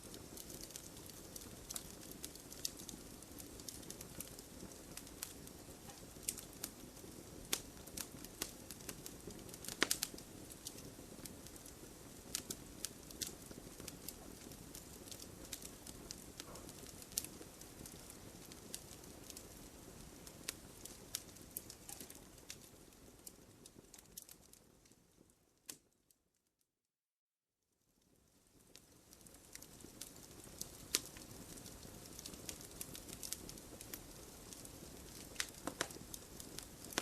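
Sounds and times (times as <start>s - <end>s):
wood fire crackling and popping: 0.0s - 26.0s, 28.0s - 37.0s.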